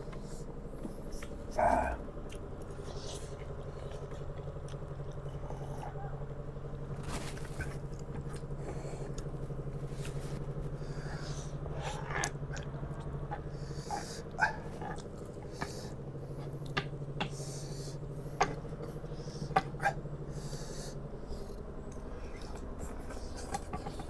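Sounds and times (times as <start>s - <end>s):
steady low hum: 0.0s - 24.0s
chewing and slurping noodles: 2.2s - 24.0s.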